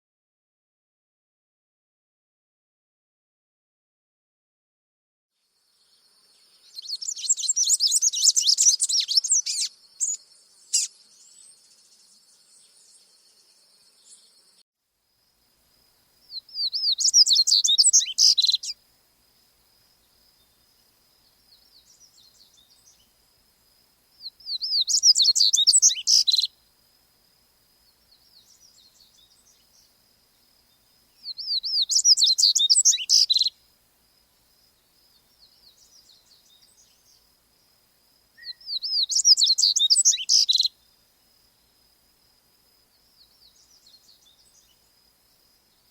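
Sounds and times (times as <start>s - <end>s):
songbird trilling: 6.7s - 11.6s, 16.3s - 18.8s, 24.2s - 26.6s, 31.2s - 33.6s, 38.4s - 40.8s.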